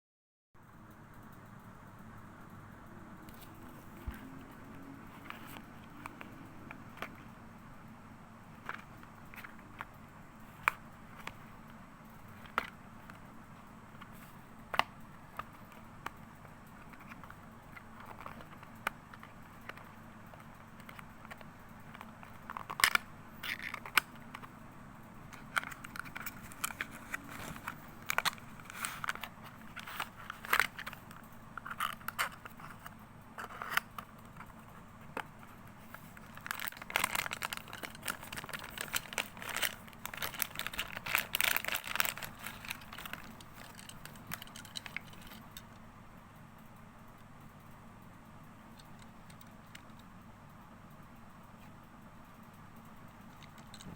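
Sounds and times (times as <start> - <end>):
packaging crinkling and rustling: 25.4 - 34.8, 35.5 - 45.5.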